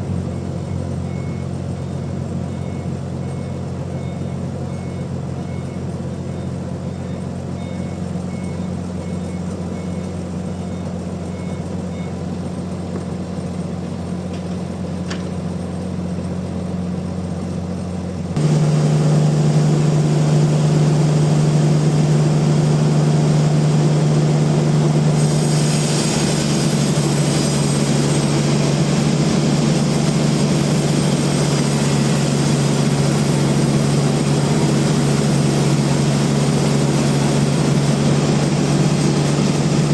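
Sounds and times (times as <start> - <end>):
sawmill machinery humming: 10.0 - 39.9
hiss: 25.1 - 39.9.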